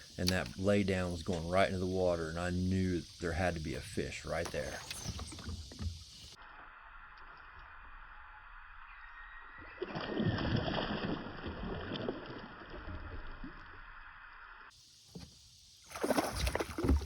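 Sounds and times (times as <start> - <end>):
fish splashing in water: 9.7 - 13.0, 15.9 - 17.0.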